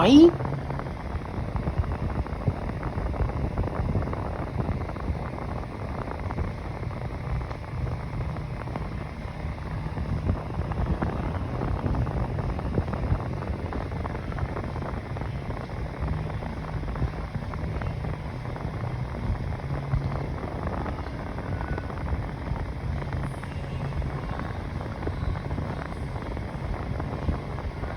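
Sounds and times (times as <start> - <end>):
fan air rushing: 0.0 - 27.9
low motor hum: 0.0 - 27.9.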